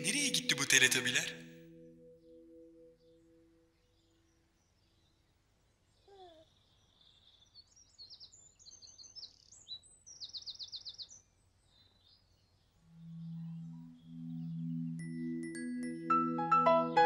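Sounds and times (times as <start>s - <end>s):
birds chirping and trilling: 2.1s - 15.5s.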